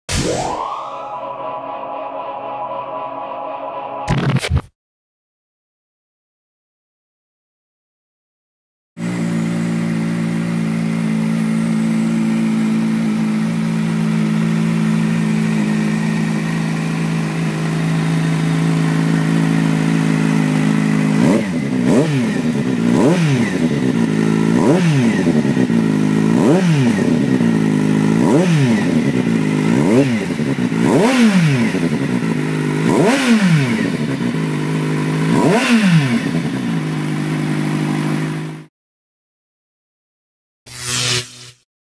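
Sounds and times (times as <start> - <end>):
motorcycle engine idling: 9.0 - 33.0, 33.9 - 35.4, 36.3 - 38.6
motorcycle engine revving: 9.0 - 38.7.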